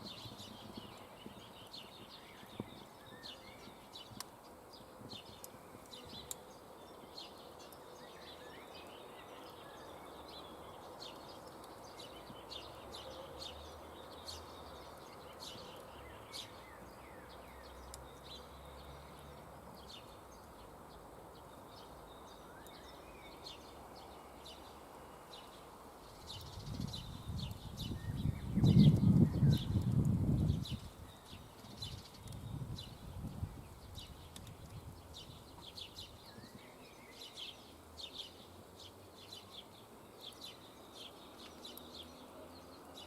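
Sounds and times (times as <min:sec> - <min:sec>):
campfire crackling: 0:00.0 - 0:43.0
bird chirps: 0:21.6 - 0:33.0, 0:33.7 - 0:38.5.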